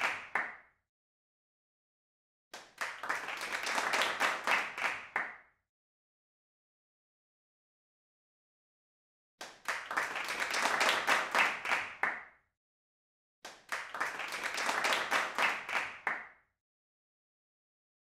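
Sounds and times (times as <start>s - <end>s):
crowd clapping: 0.0s - 0.6s, 2.6s - 5.4s, 9.4s - 12.2s, 13.5s - 16.3s.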